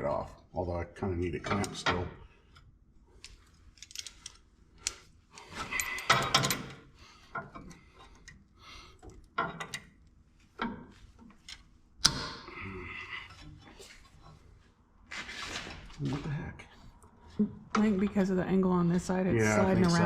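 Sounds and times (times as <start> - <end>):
metal tools clinking and rattling: 5.4 - 6.8.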